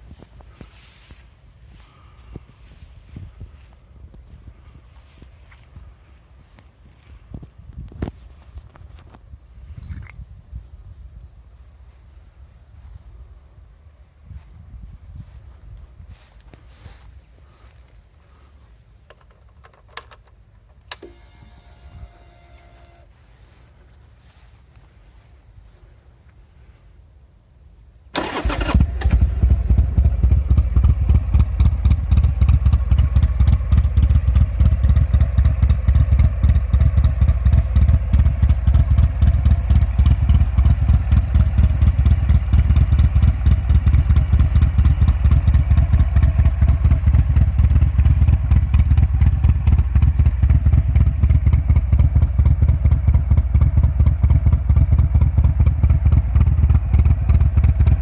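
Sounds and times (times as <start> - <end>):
motorcycle engine starting and idling: 19.0 - 24.5, 28.1 - 58.0.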